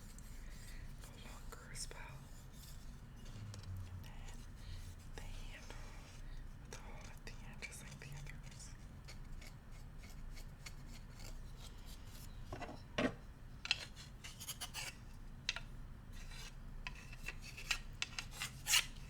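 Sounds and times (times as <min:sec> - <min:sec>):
bamboo utensils scratching and clicking: 0:07.9 - 0:12.2, 0:13.6 - 0:19.0.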